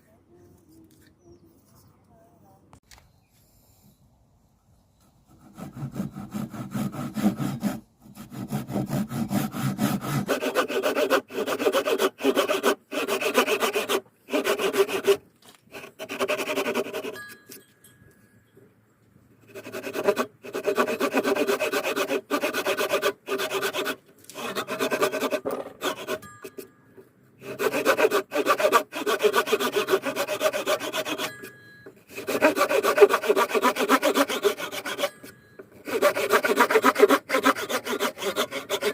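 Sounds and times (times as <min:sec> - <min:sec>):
hand saw cutting wood: 0:05.3 - 0:17.4, 0:19.4 - 0:26.6, 0:27.4 - 0:38.9.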